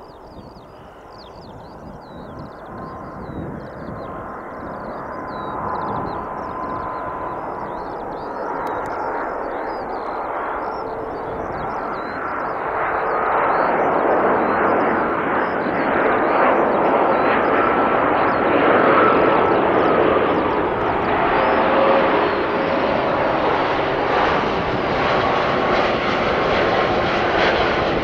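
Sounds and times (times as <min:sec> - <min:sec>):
jet engines roaring: 0:00.0 - 0:28.0.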